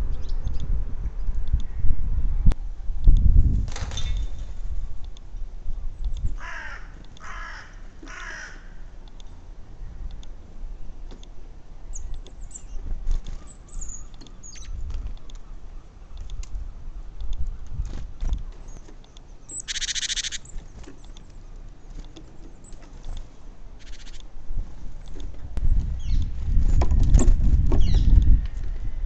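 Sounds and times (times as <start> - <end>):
birds chirping: 5.8 - 24.4
harsh rasping bird call: 6.4 - 8.8, 19.5 - 20.5.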